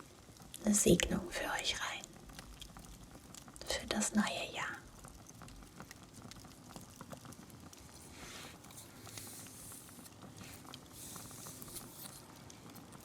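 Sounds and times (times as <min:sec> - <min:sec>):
fire crackling and popping: 0:00.0 - 0:13.0
soft rustles: 0:07.8 - 0:13.0.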